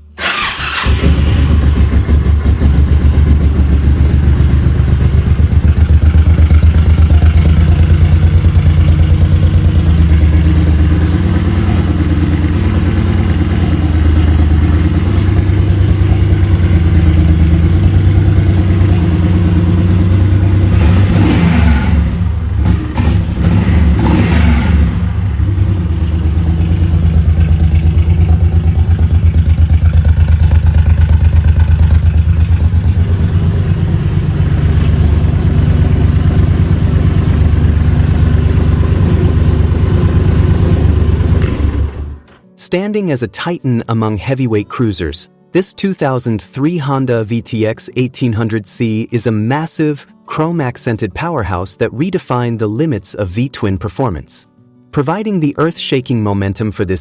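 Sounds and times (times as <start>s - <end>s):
motorcycle engine pulsing exhaust: 0.2s - 42.3s.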